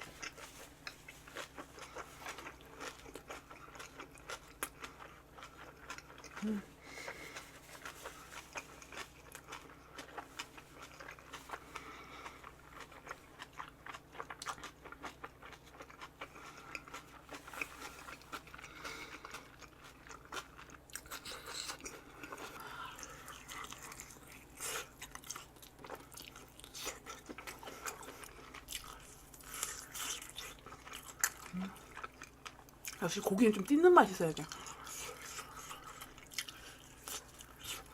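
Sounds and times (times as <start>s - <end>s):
crisp chewing crunches: 0.0s - 37.9s.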